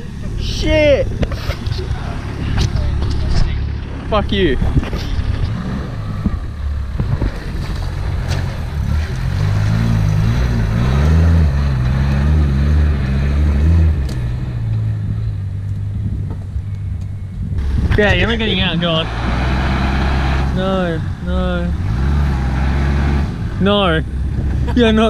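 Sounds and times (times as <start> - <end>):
car engine driving through mud: 1.2 - 14.8.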